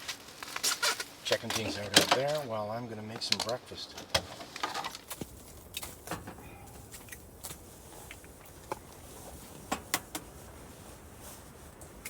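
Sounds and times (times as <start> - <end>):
low steady rumble: 5.1 - 12.0.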